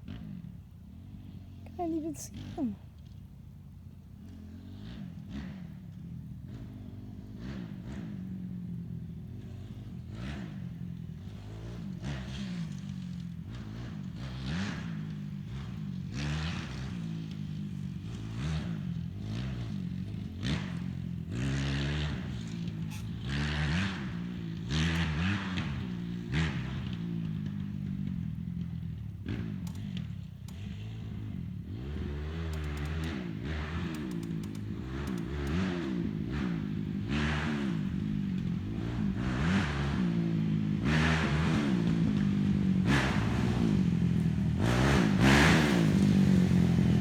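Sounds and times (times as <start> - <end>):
dirt bike engine revving: 11.3 - 47.0.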